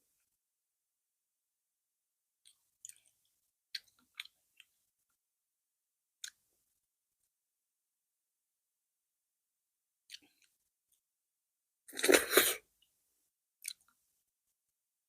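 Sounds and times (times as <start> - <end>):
wet chewing clicks and smacks: 2.4 - 4.7, 13.6 - 14.0.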